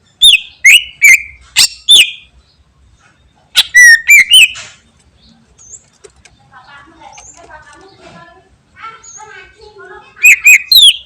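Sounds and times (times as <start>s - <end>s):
bird whistling sharp notes: 0.2s - 2.3s, 3.6s - 4.6s, 10.2s - 11.0s.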